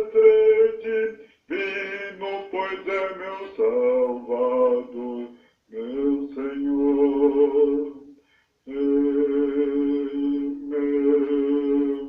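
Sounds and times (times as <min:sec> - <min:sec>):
voices singing in harmony: 0:00.0 - 0:12.0.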